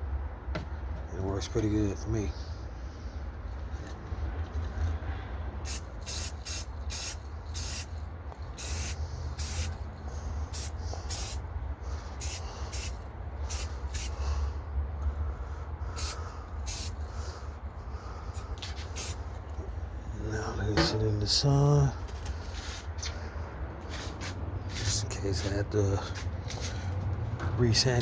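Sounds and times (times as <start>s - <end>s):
spray can hissing bursts: 5.6s - 9.8s, 10.5s - 11.4s, 12.2s - 14.2s, 16.0s - 17.0s, 18.4s - 19.2s.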